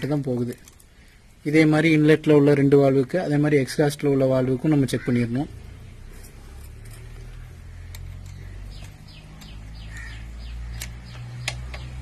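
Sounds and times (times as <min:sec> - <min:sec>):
small bird chirping: 0:05.7 - 0:12.0
sharp ticks: 0:07.9 - 0:09.8, 0:10.5 - 0:12.0.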